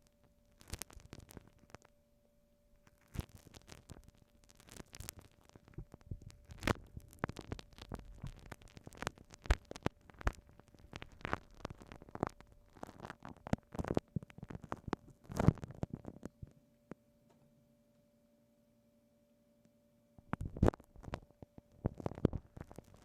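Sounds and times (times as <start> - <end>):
sticky glue stick crackles: 3.0 - 15.7.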